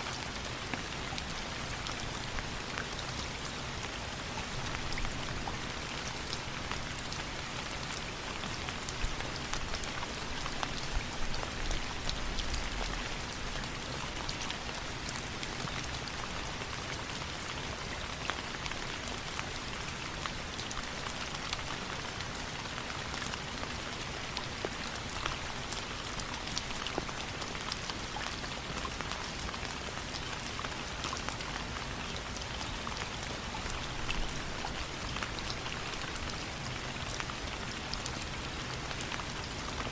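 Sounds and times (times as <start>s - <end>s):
raindrops ticking on a surface: 0.0s - 39.9s
steady rain: 0.0s - 39.9s.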